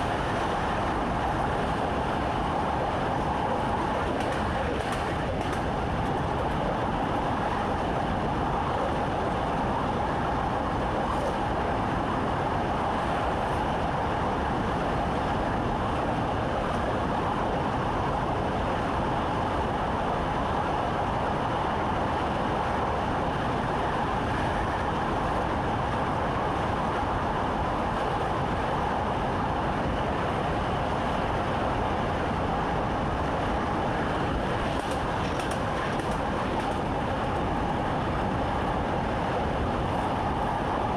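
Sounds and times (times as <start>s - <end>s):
train wheels rumbling: 33.8s - 40.9s.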